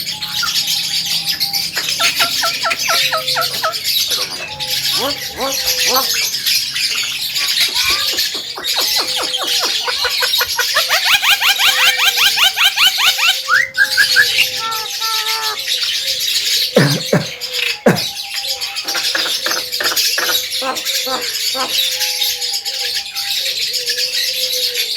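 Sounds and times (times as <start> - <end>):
sharp falling bird calls: 0.1 - 22.2.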